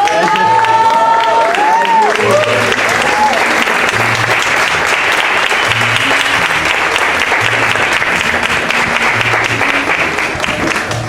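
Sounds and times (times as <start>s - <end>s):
audience clapping: 0.0s - 11.0s
music with deep bass notes: 3.7s - 11.0s.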